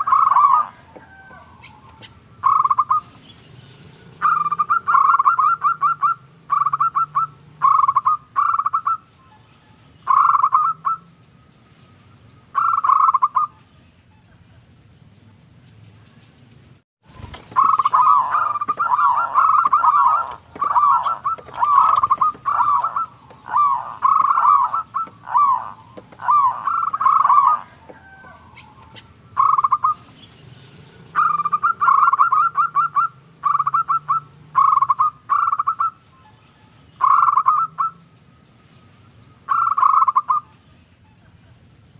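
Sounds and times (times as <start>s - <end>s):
dove trilled cooing: 0.0s - 9.4s, 10.1s - 11.1s, 12.6s - 13.6s, 17.1s - 30.2s, 30.8s - 36.0s, 37.0s - 38.0s, 39.5s - 40.5s.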